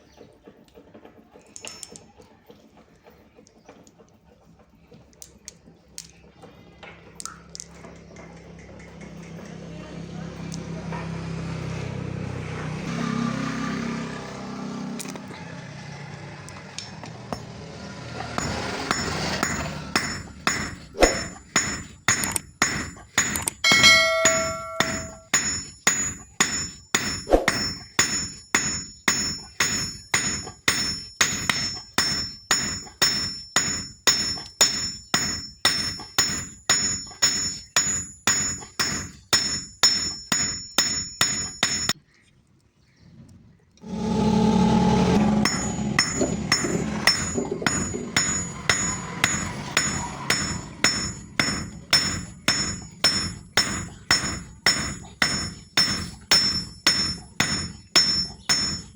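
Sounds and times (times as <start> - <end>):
hammer striking steel on anvil: 18.2 - 42.0, 43.8 - 58.9
steady rushing noise: 43.8 - 47.3.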